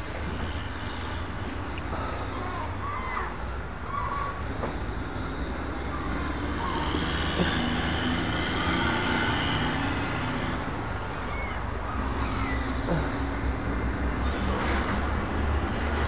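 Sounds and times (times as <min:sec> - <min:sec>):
low outdoor rumble: 0:00.0 - 0:16.0
faint seagull calls: 0:02.0 - 0:04.7, 0:05.8 - 0:07.6, 0:11.2 - 0:13.2.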